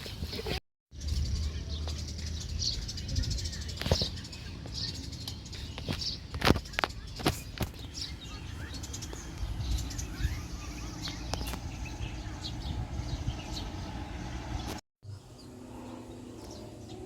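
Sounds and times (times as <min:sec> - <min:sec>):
small birds chirping: 0:00.0 - 0:17.0
steady low rumble: 0:08.1 - 0:17.0.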